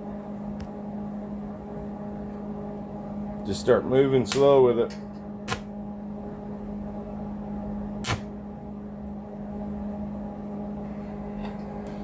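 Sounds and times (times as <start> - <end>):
stick welder humming: 3.4 - 5.9, 7.6 - 8.5
electrode striking click: 4.3 - 5.7, 8.0 - 8.4.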